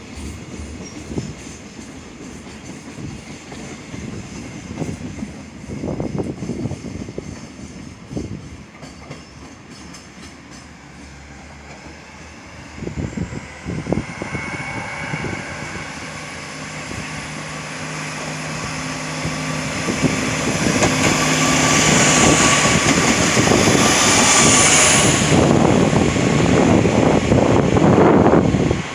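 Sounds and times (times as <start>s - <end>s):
freight train passing: 0.0s - 28.9s.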